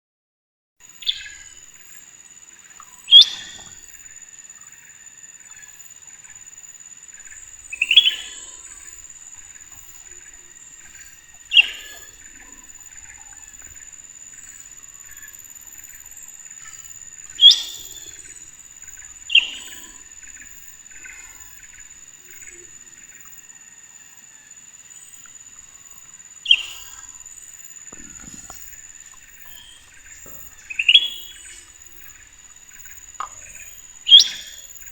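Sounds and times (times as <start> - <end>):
faint rapid chirping: 0.8 - 34.9
bird chirping sharply: 3.1 - 3.7.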